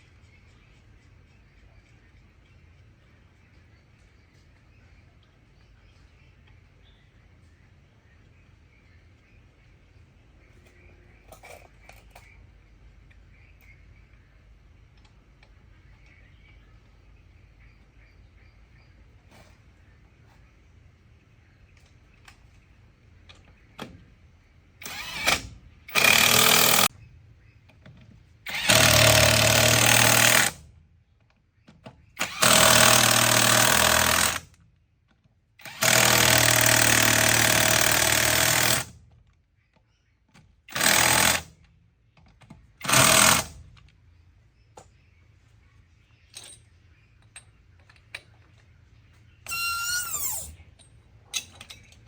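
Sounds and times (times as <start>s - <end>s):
power tool bursts: 24.8s - 26.9s, 28.5s - 30.6s, 32.2s - 34.5s, 35.6s - 39.0s, 40.7s - 41.5s, 42.8s - 43.6s, 49.5s - 50.6s.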